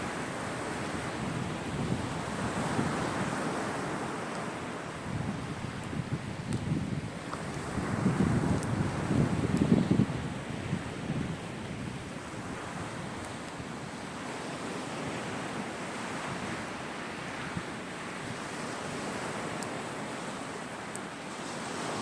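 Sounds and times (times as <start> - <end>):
sea waves breaking: 0.0 - 22.0
wind on microphone: 0.0 - 22.0
faint high ticks: 5.8 - 6.7, 8.4 - 8.8, 19.5 - 19.8.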